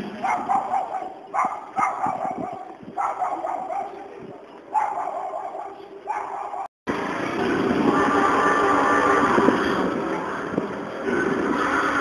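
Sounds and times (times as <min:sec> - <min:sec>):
dog barking: 0:00.2 - 0:04.0, 0:04.7 - 0:06.7.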